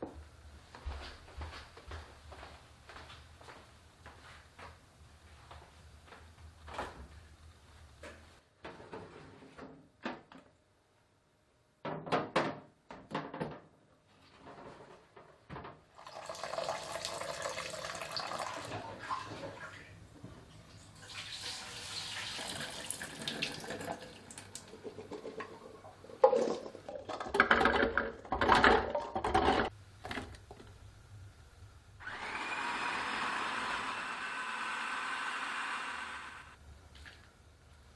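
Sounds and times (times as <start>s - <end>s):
knocks and clatter at sink: 26.2s - 30.3s.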